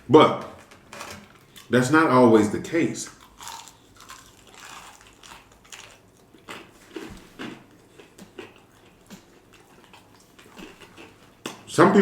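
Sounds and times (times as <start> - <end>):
chewing crunchy food: 1.4 - 1.9, 3.1 - 11.7.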